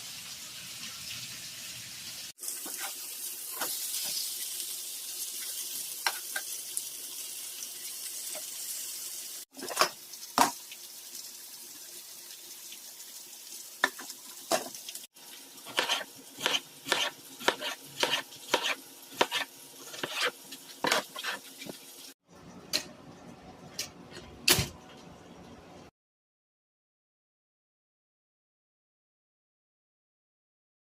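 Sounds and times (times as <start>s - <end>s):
food sizzling in a pan: 0.0s - 22.2s.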